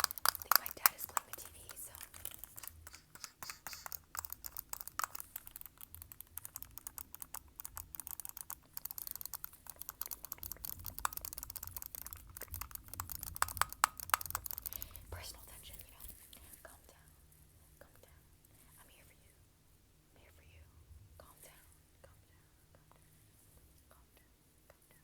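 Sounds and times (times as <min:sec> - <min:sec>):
fingernail tapping on objects: 0:00.0 - 0:14.8.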